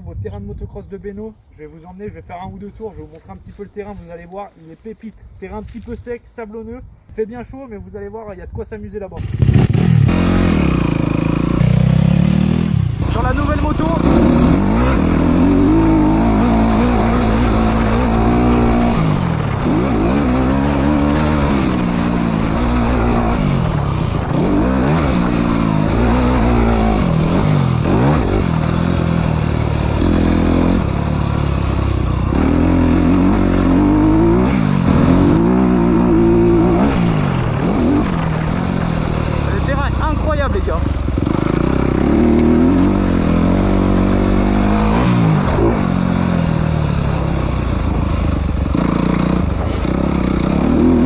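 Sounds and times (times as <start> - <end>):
motocross bike engine revving: 9.2 - 51.0.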